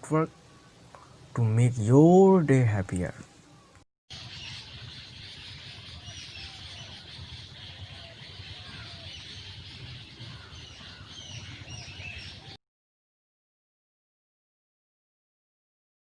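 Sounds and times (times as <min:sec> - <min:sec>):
birds chirping in chorus: 0:00.0 - 0:02.3, 0:02.9 - 0:12.6.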